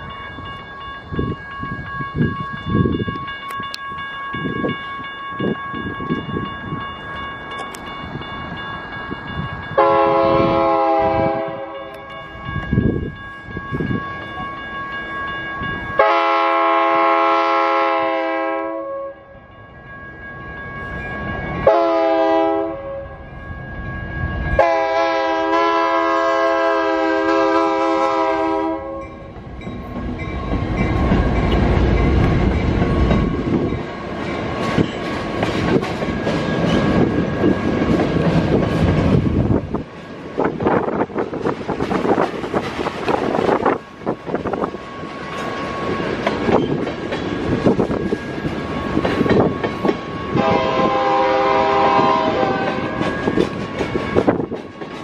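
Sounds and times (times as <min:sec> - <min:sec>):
crossing bell ringing: 0:00.0 - 0:55.0
freight train rumbling over crossing: 0:00.0 - 0:55.0
locomotive horn blasts: 0:09.8 - 0:12.1, 0:16.0 - 0:19.3, 0:21.6 - 0:23.2, 0:24.6 - 0:29.2, 0:50.3 - 0:53.0.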